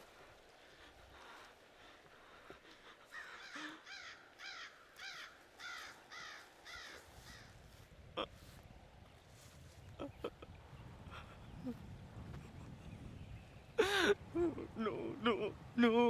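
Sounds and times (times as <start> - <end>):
bird cawing: 3.1 - 7.6.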